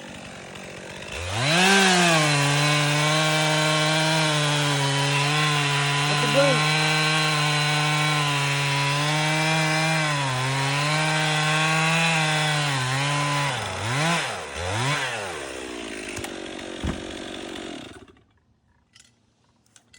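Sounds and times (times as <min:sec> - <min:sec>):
chainsaw cutting and revving: 0:00.0 - 0:18.3.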